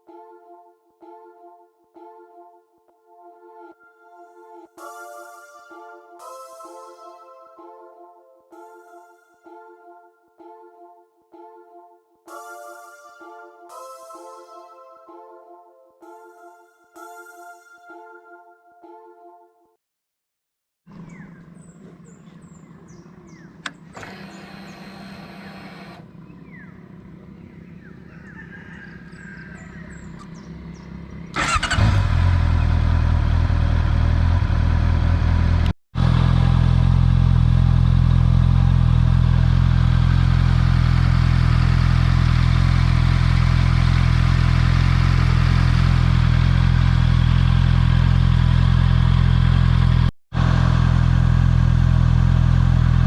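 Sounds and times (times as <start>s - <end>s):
motorcycle engine idling: 21.0s - 53.0s
faint whir: 23.6s - 26.1s.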